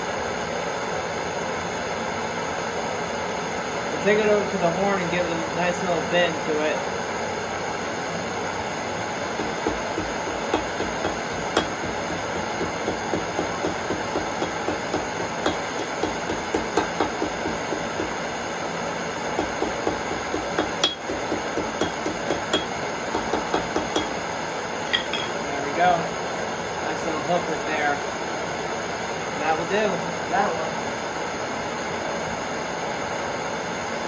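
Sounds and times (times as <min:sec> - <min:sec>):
gas torch flame: 0:08.4 - 0:25.1
hammer striking on anvil: 0:09.4 - 0:18.2, 0:19.4 - 0:24.2, 0:24.9 - 0:25.4.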